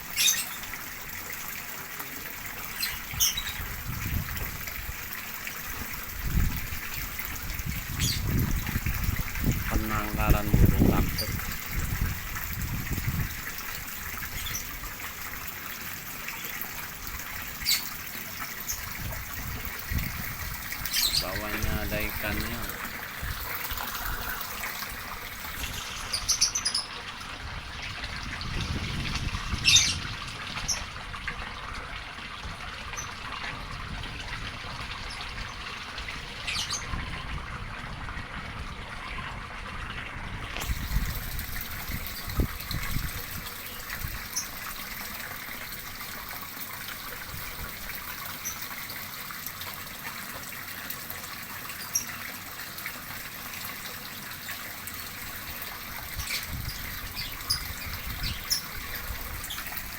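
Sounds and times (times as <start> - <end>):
water running and trickling: 0.0 - 59.9
bird chirps: 0.2 - 0.6.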